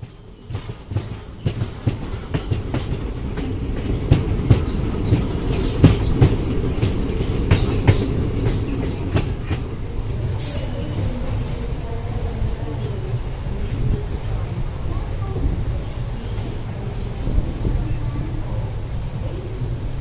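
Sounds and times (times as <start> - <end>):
train wheels clattering on rail joints: 0.0 - 11.7
train low rumble: 0.0 - 20.0.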